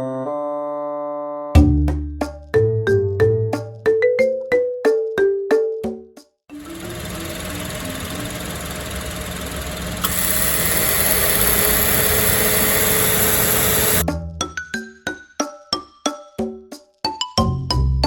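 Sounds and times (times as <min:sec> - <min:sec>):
high steady tone: 0:06.5 - 0:14.0
car engine idling: 0:06.6 - 0:14.0.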